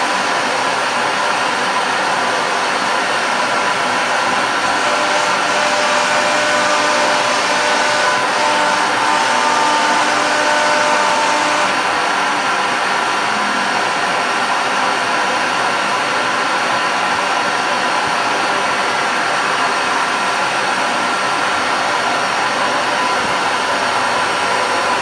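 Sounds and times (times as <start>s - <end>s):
router spindle whine: 0.0s - 17.4s.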